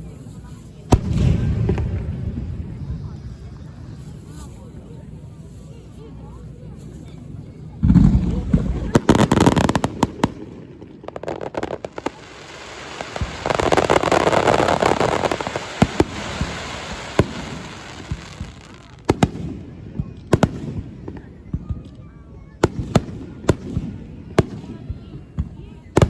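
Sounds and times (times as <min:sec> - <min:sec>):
dense crackling hiss: 0:00.0 - 0:19.2
fireworks bursting with crackling pops: 0:00.0 - 0:26.0.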